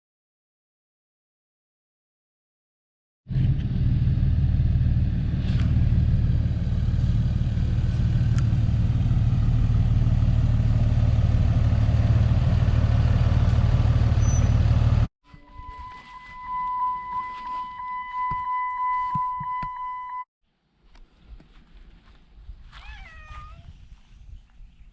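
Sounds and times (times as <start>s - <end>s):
diesel engine running: 3.3s - 15.1s.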